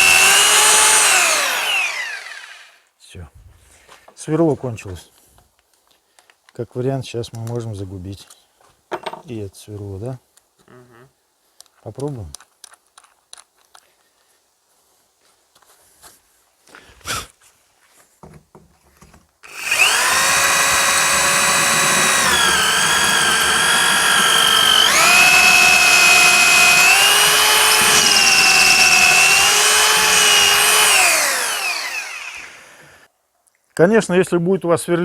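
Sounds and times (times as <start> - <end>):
rotary hammer drilling brick: 0.0 - 2.8, 19.4 - 33.1.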